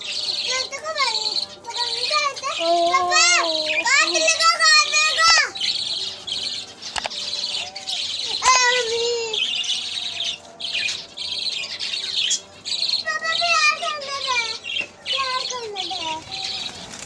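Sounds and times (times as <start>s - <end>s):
budgerigars chattering and chirping: 0.0s - 17.0s
sharp clicks: 6.9s - 7.2s.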